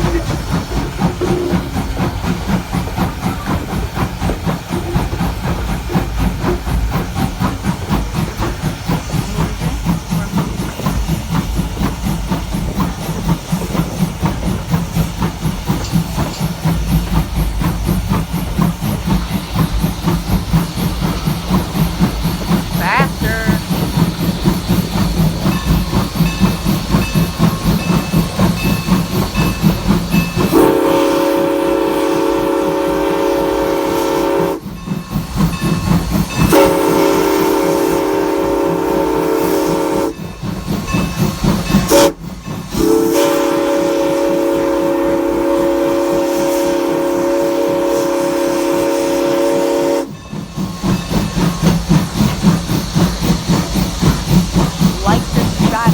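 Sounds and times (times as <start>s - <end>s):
steam locomotive chuffing: 0.0s - 55.9s
steam whistle blasts: 30.5s - 34.7s, 36.4s - 40.2s, 41.9s - 50.2s.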